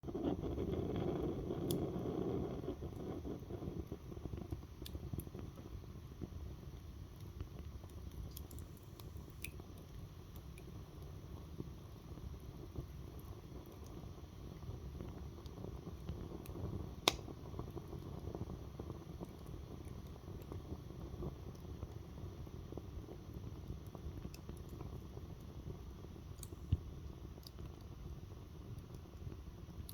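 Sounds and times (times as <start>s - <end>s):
fire crackling: 0.0s - 29.9s
wood fire burning: 0.0s - 29.9s
sharp pops of fire: 0.1s - 5.6s, 14.7s - 21.7s, 26.2s - 27.8s.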